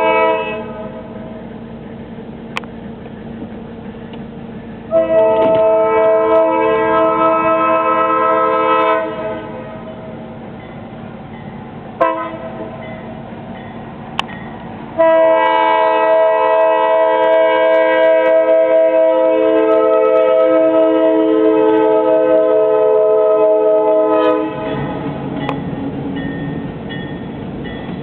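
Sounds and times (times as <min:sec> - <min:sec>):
locomotive air horn blasts: 0:00.0 - 0:01.2, 0:04.9 - 0:09.9, 0:12.0 - 0:12.8, 0:15.0 - 0:25.0
locomotive rumble: 0:00.0 - 0:28.0.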